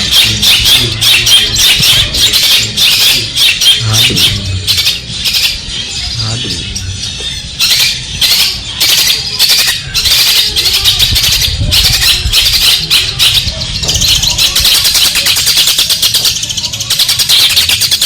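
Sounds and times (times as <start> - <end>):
bird singing harsh chatter: 0.0 - 18.0.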